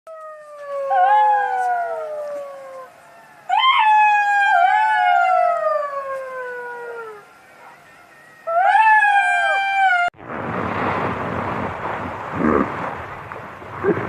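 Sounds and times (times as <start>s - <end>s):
jackals howling in chorus: 0.4s - 10.1s.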